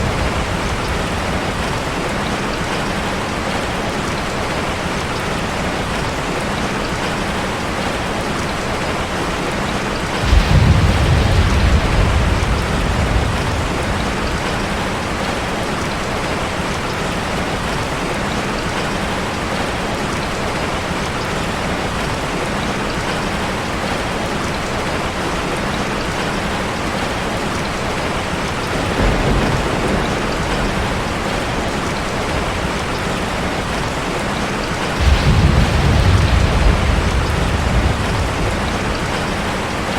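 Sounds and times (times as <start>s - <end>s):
low rolls of thunder: 0.0s - 3.0s, 10.1s - 16.4s, 28.5s - 39.9s
heavy rain hitting a car: 0.0s - 39.9s.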